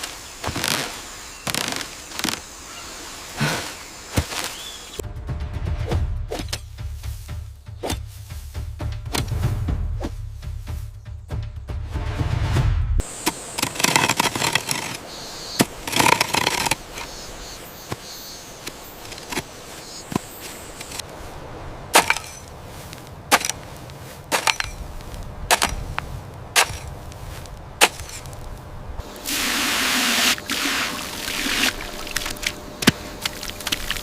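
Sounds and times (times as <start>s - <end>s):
rustling: 13.0s - 29.2s
wood chopping knocks and cracks: 21.9s - 22.4s, 23.3s - 23.6s, 25.5s - 25.9s, 26.6s - 26.9s.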